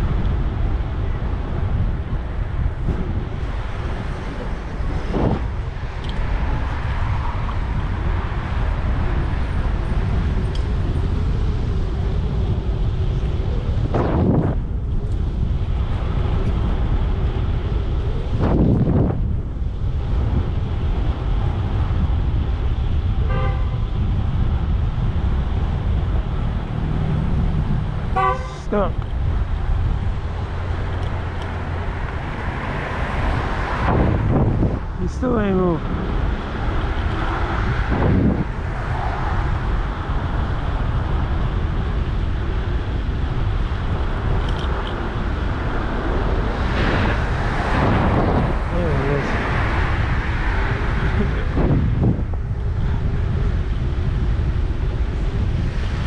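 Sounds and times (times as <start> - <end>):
street traffic rumble: 0.0 - 56.0
wind: 0.0 - 56.0
car horn honk: 23.2 - 23.8, 28.2 - 28.6.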